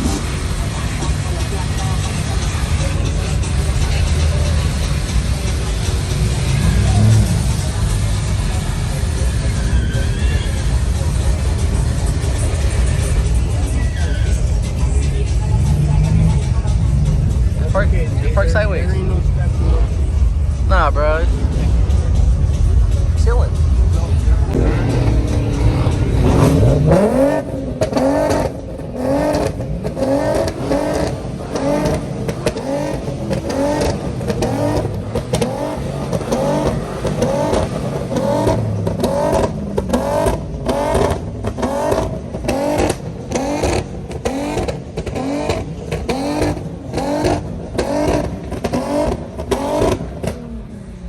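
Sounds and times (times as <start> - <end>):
engine revving in quick blips: 24.5 - 50.7.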